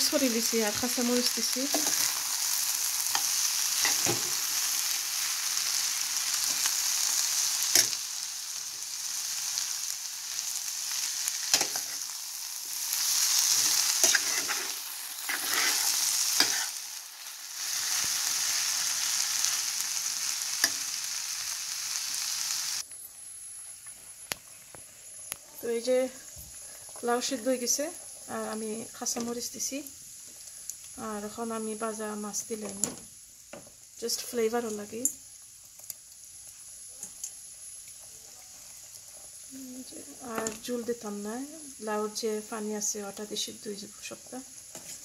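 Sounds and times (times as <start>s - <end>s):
food sizzling in hot oil: 0.0s - 45.0s.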